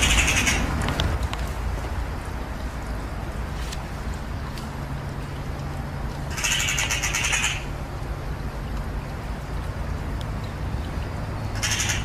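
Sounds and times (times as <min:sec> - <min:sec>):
bird chattering call: 0:00.0 - 0:00.7, 0:06.3 - 0:07.7, 0:11.6 - 0:12.0
steady low rumble: 0:00.0 - 0:12.0.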